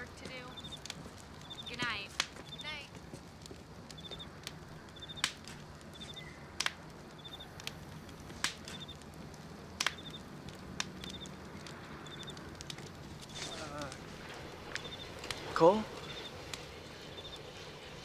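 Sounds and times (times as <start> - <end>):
cricket chirping: 0.0 - 2.8, 3.9 - 8.0, 8.7 - 15.3, 15.9 - 16.4, 17.1 - 17.5
sharp clicks or snaps: 6.6 - 6.8, 9.8 - 10.2.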